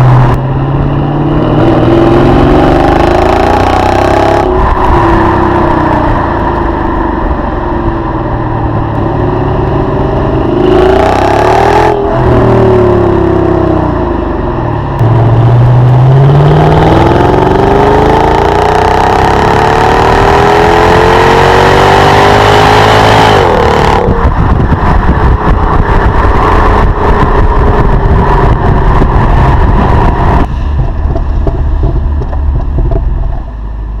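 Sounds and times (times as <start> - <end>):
car engine revving: 0.0 - 33.5.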